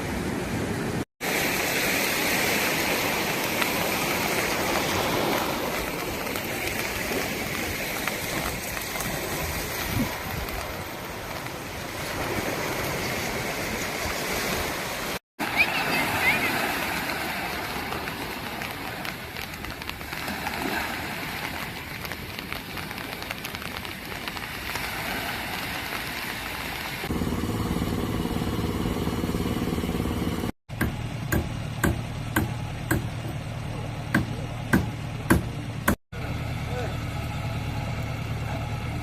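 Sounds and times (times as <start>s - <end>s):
engine idling: 27.1s - 39.0s
sharp knocks: 30.7s - 33.4s, 34.1s - 36.0s
distant voices: 31.0s - 39.0s.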